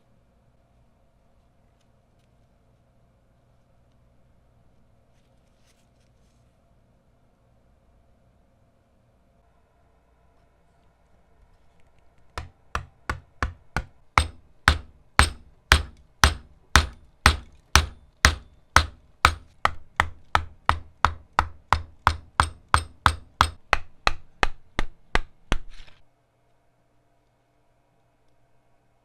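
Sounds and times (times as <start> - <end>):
hammer blows ringing: 12.4 - 25.3.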